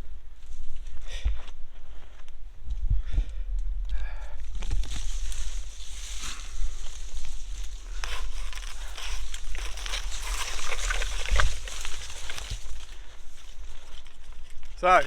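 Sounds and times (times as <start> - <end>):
wind on microphone: 2.6 - 13.3
rustling in leaf litter: 4.5 - 15.0.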